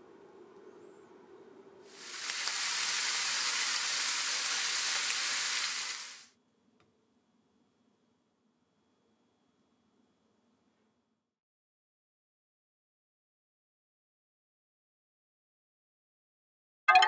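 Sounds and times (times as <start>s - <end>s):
meat sizzling in a frying pan: 1.9s - 6.3s.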